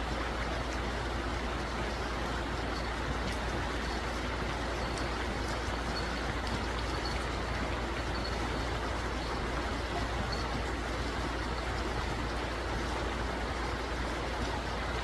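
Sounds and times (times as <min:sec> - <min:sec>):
river flowing over rocks: 0:00.0 - 0:15.0.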